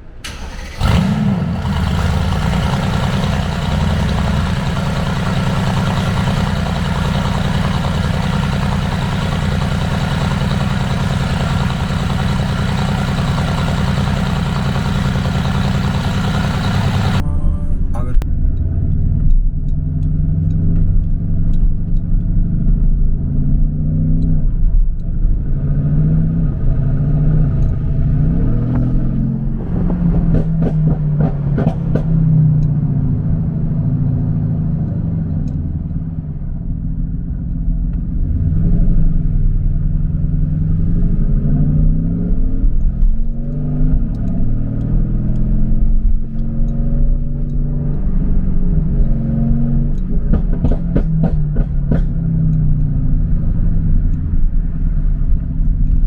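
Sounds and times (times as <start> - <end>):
car engine accelerating and shifting: 0.2 - 17.2, 18.0 - 56.0
sharp exhaust crackles: 0.3 - 17.2.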